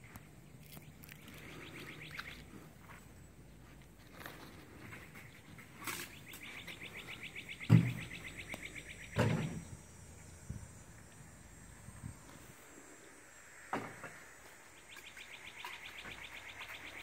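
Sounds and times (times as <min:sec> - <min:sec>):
songbird rapid high trill: 0:00.8 - 0:02.5, 0:05.9 - 0:09.2.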